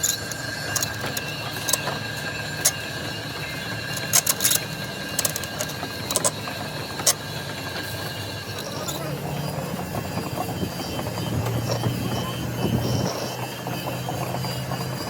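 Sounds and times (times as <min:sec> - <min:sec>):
metal tools clicking and knocking: 0:00.0 - 0:07.4
faint steady whine: 0:00.0 - 0:15.0.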